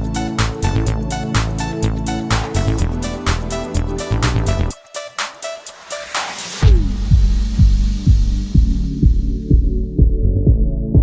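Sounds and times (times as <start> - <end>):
electronic music: 0.0 - 11.0
kick drum beating: 6.6 - 11.0.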